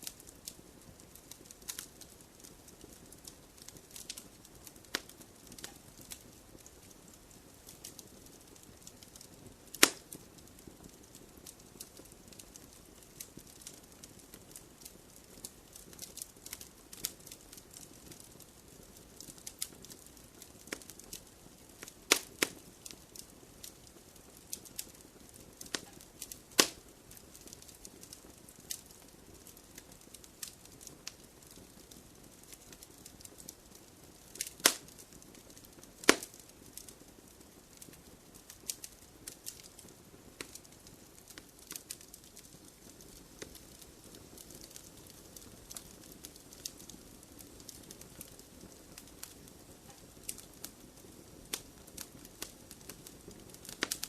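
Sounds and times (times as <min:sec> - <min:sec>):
wood fire crackling: 0:00.0 - 0:54.0
logs popping: 0:09.8 - 0:10.0, 0:25.6 - 0:26.8, 0:34.4 - 0:34.8, 0:36.0 - 0:36.3.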